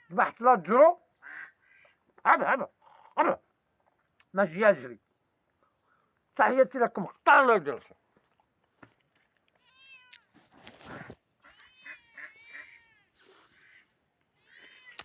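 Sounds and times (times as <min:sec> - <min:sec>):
cat meowing faintly: 0:09.6 - 0:10.3, 0:11.5 - 0:13.2, 0:14.4 - 0:15.0.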